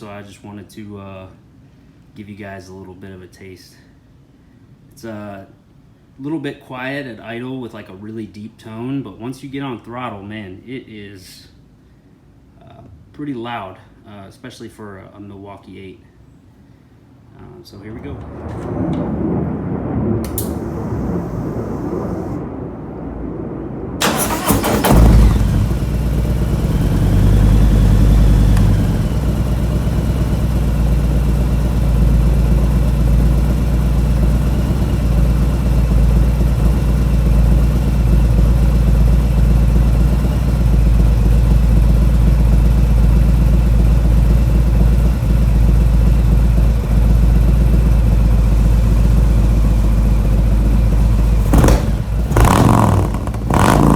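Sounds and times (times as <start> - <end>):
motorcycle engine starting and idling: 24.0 - 53.9.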